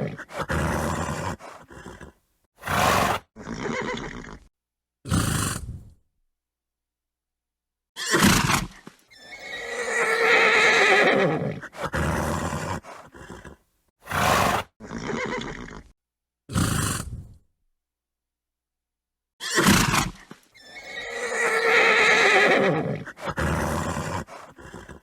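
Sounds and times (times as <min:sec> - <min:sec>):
horse snorting: 0:00.0 - 0:04.5, 0:05.1 - 0:06.0, 0:08.1 - 0:15.9, 0:16.5 - 0:17.4, 0:19.5 - 0:25.0
horse whinnying: 0:00.0 - 0:04.5, 0:08.0 - 0:15.9, 0:19.4 - 0:25.0.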